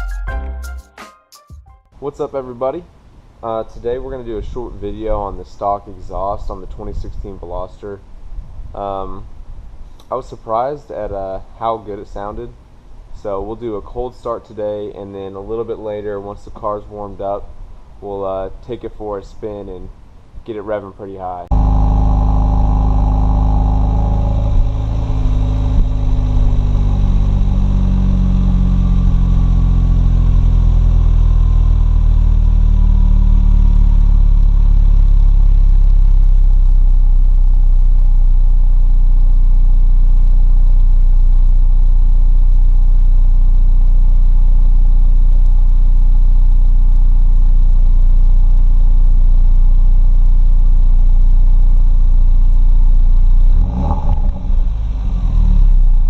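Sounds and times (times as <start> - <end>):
car engine idling: 21.5 - 56.0.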